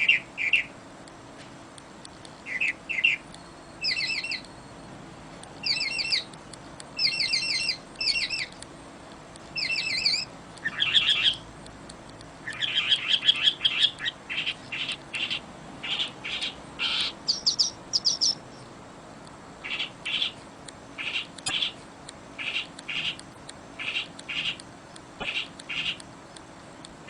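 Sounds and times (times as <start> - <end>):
bird trill: 0.0 - 0.8, 2.5 - 4.6, 5.6 - 6.3, 7.0 - 8.5, 9.6 - 11.4, 12.4 - 18.5
birds chirping and calling: 0.0 - 0.8, 2.5 - 4.5, 5.6 - 6.3, 7.0 - 8.5, 9.6 - 11.5, 12.4 - 18.5, 19.6 - 20.4, 22.4 - 23.2, 23.8 - 24.6, 25.2 - 26.0.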